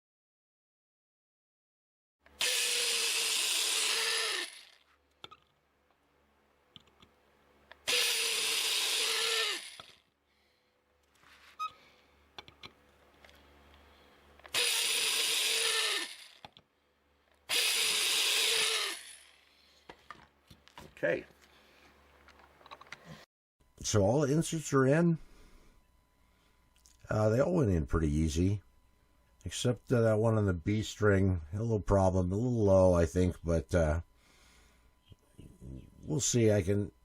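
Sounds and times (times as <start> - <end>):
power drill running: 2.3 - 4.9, 7.8 - 10.1, 14.4 - 16.6, 17.5 - 19.8.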